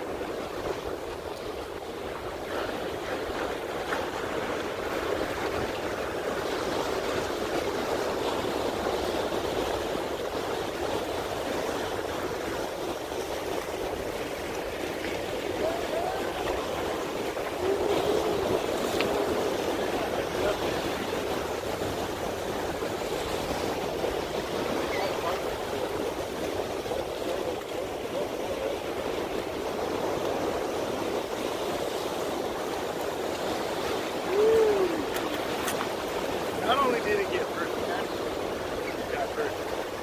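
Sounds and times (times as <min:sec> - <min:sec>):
water sloshing against stone: 0:35.0 - 0:38.2.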